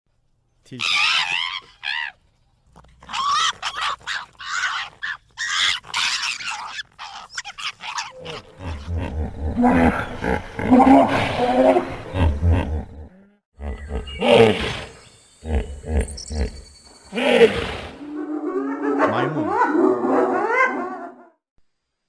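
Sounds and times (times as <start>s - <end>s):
high warbling animal cries: 0.8s - 2.2s, 13.6s - 21.2s
deep rough animal roar: 8.2s - 16.6s.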